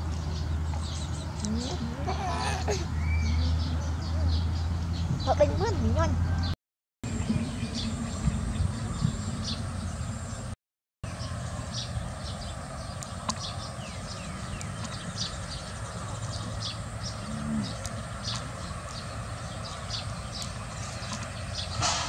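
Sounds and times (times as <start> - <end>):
small birds chirping: 0.0 - 22.0
steady low rumble: 7.1 - 22.0.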